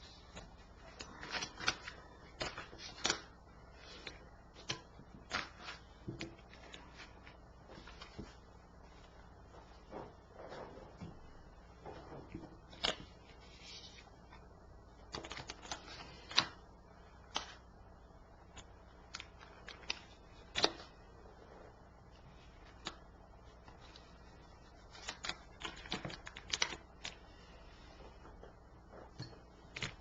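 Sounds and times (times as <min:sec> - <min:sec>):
cards being shuffled: 0:00.2 - 0:08.4, 0:12.7 - 0:14.4, 0:15.1 - 0:16.6, 0:18.5 - 0:20.9, 0:24.8 - 0:27.2.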